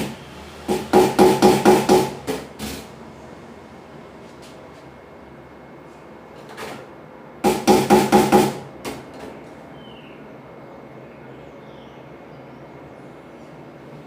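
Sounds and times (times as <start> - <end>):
loud ringing knocks: 0.7 - 2.8, 7.4 - 9.0.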